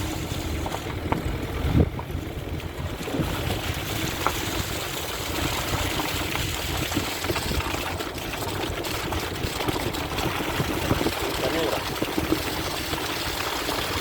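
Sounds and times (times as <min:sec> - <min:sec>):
water rushing: 0:02.9 - 0:14.0.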